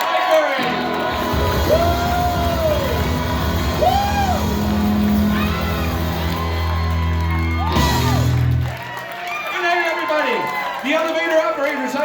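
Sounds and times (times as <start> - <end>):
rock band holding a chord: 0.6 - 8.7
person whooping: 1.4 - 8.4.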